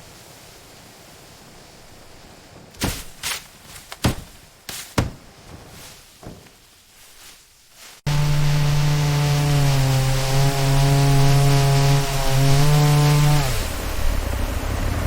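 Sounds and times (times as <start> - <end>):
thuds and knocks: 2.8 - 6.7
chainsaw running: 8.1 - 13.8.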